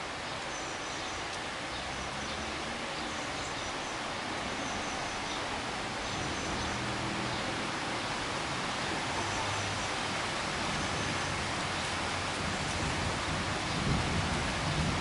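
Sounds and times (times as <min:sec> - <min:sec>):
heavy rain hissing: 0:00.0 - 0:15.0.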